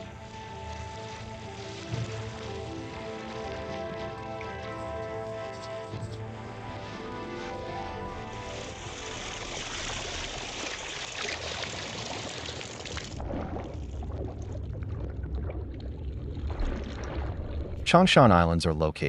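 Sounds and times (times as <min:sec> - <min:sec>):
seawater splashing and pouring: 0:00.0 - 0:17.9
low rumble: 0:13.1 - 0:18.1.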